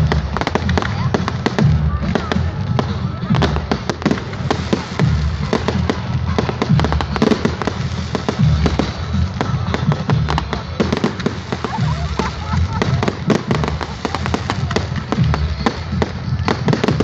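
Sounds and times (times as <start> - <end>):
fireworks cracking and popping: 0.0 - 17.0.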